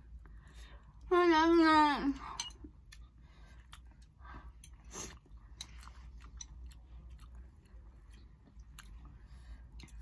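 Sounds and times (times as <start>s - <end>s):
faint low hum: 0.0s - 10.0s
chewing noodles: 2.7s - 10.0s.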